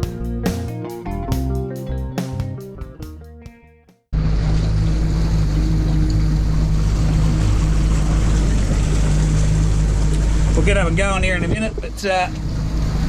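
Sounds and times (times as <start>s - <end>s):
guitar music: 0.0s - 4.1s
outboard motor running: 4.3s - 11.3s
wind noise on microphone: 6.5s - 13.0s.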